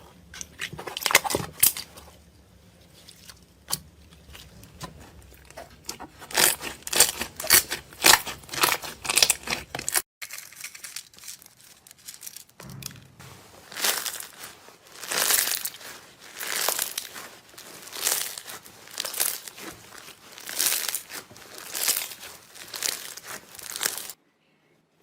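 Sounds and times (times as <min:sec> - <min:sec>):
slime squished by hand: 0:13.4 - 0:24.2.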